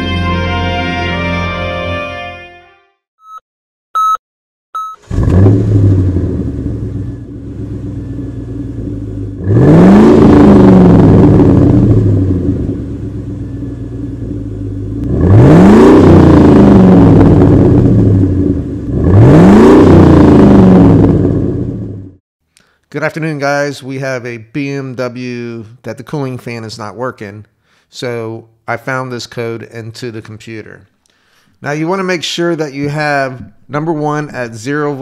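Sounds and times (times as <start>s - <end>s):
short electronic beep: 3.2s - 3.4s, 4.0s - 4.2s, 4.8s - 5.1s
car engine revving: 5.0s - 22.2s.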